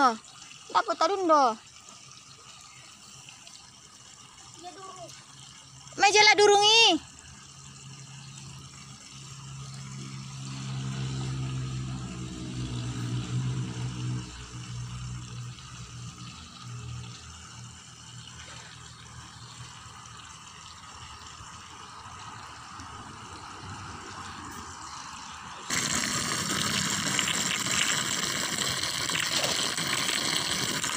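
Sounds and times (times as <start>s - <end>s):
low motor hum: 6.3s - 30.9s
watery hiss: 9.0s - 30.9s.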